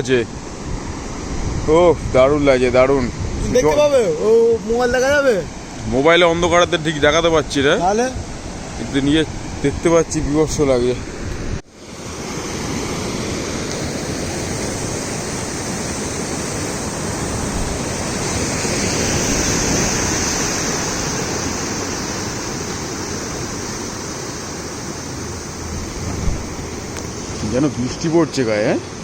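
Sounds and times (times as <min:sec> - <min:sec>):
waves breaking against a seawall: 0:00.0 - 0:29.0.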